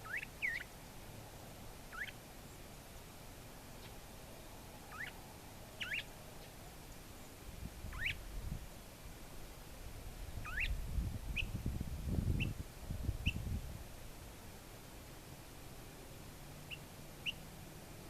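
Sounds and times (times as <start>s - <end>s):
mockingbird calling: 0.0s - 0.7s, 1.9s - 2.2s, 4.9s - 5.2s, 5.8s - 6.1s, 7.9s - 8.2s, 10.4s - 10.7s.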